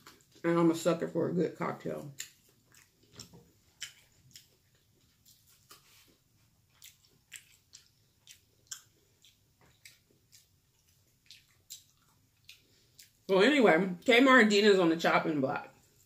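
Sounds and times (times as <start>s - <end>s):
person chewing with wet mouth clicks: 2.1s - 6.0s, 6.7s - 13.3s.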